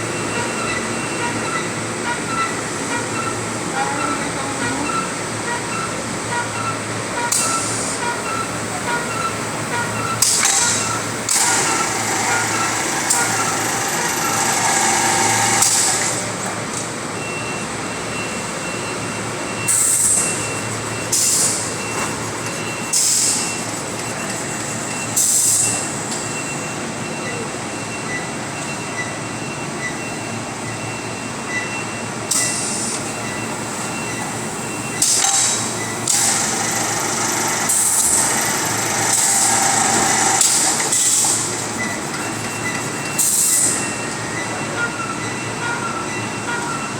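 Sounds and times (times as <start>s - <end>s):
packaging machine din: 7.2s - 16.8s, 18.2s - 26.6s, 32.3s - 45.5s
short hissing bursts: 19.7s - 25.8s, 39.0s - 43.8s.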